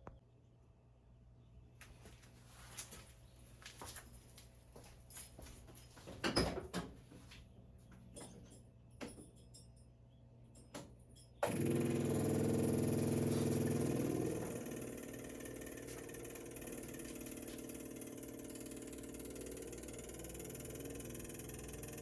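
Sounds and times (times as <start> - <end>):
car engine running: 11.6 - 22.0.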